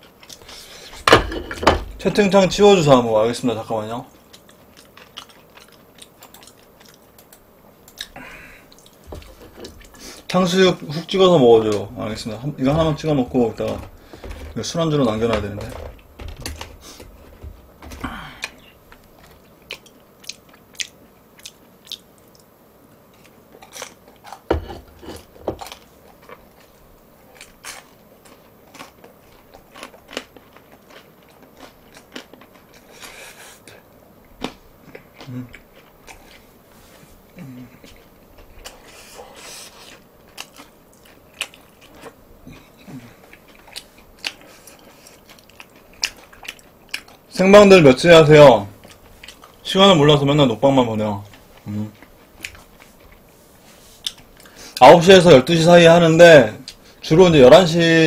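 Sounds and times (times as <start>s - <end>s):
crunchy chewing: 4.1s - 10.4s, 11.7s - 47.3s, 48.7s - 49.7s, 51.2s - 53.4s.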